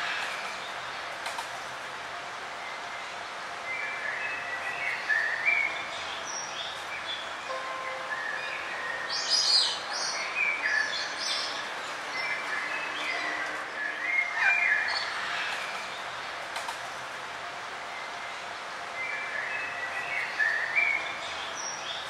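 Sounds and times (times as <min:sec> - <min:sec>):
ambient hiss: 0:00.0 - 0:13.0
songbirds chirping and trilling: 0:00.0 - 0:22.0.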